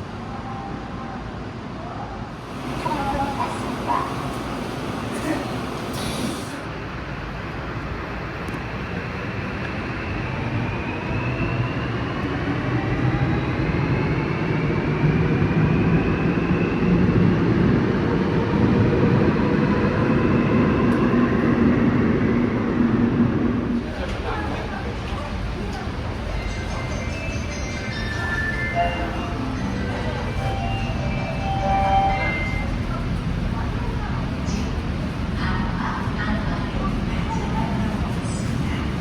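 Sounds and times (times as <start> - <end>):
train cars rumbling: 2.2 - 6.8, 17.4 - 39.0.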